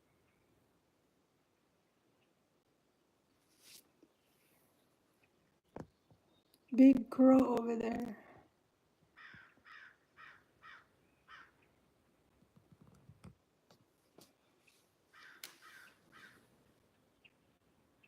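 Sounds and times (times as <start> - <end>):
crow cawing faintly: 9.1 - 11.7, 15.1 - 16.6.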